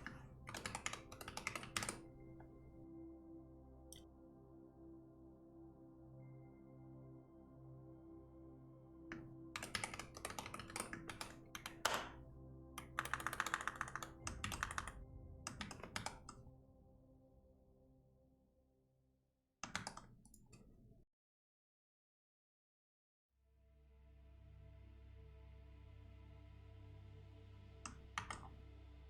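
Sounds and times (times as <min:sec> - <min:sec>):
keyboard typing: 0:00.0 - 0:02.8, 0:09.1 - 0:12.2, 0:12.8 - 0:16.4, 0:19.6 - 0:20.6, 0:27.9 - 0:28.6
soft ambient music: 0:00.0 - 0:19.0, 0:23.4 - 0:29.0.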